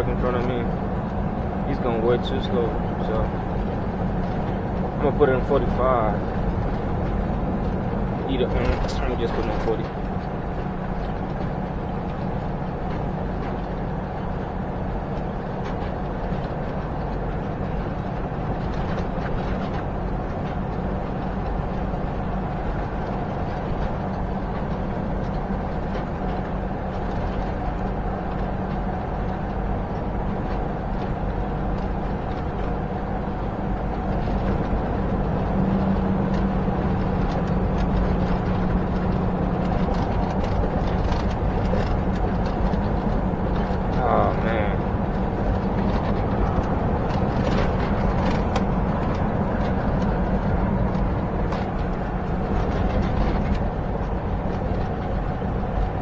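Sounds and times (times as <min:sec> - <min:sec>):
truck engine and road drone: 0:00.0 - 0:56.0.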